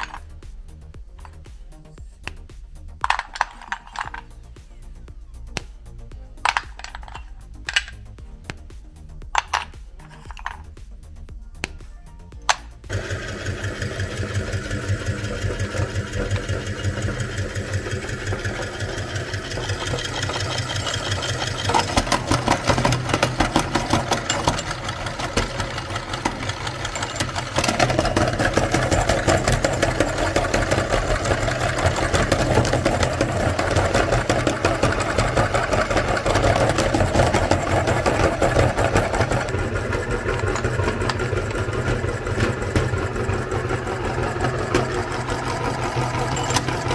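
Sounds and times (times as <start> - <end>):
meat grinder motor running: 12.9 - 46.9.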